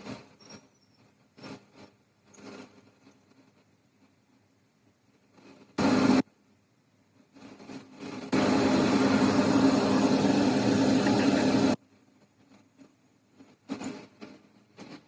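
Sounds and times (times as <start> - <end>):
machine humming and hissing: 5.8 - 6.2, 8.3 - 11.8.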